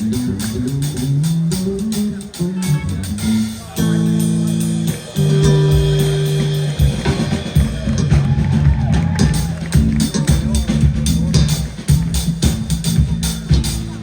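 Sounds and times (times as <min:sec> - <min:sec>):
bass guitar plucked low notes: 0:00.0 - 0:14.0.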